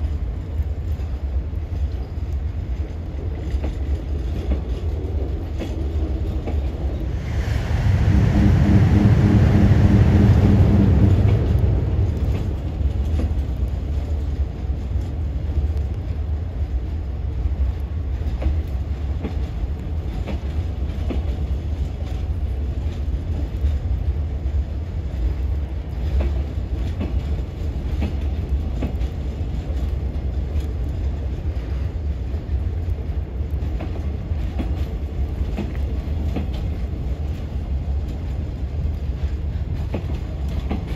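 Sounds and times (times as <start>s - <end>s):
train wheels rumbling on track: 0.0s - 40.9s
clicks over rail joints: 26.0s - 31.5s, 38.1s - 40.9s.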